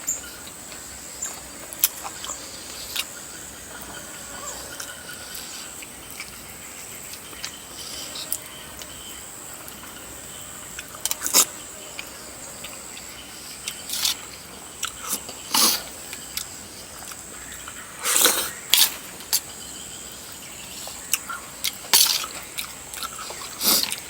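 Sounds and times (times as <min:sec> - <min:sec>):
person eating noises: 0:00.1 - 0:09.9, 0:10.7 - 0:19.6, 0:20.7 - 0:24.0.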